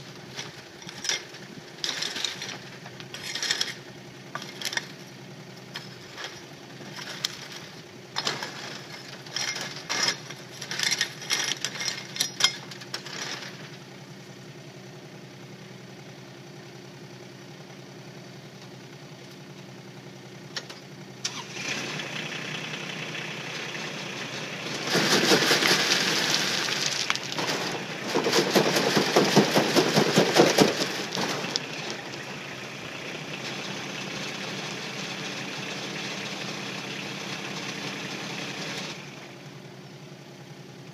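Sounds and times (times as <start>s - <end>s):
excavator diesel engine running: 0.0s - 40.9s
stony soil rattling on a screen: 0.1s - 5.0s, 5.7s - 13.7s, 24.4s - 32.4s.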